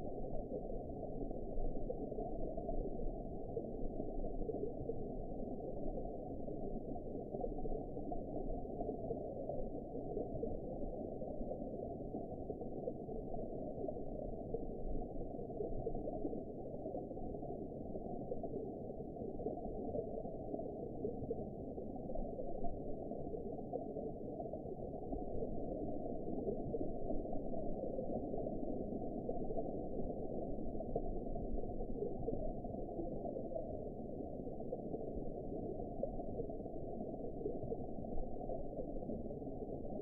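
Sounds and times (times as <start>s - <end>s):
muffled underwater water noise: 0.0s - 40.0s.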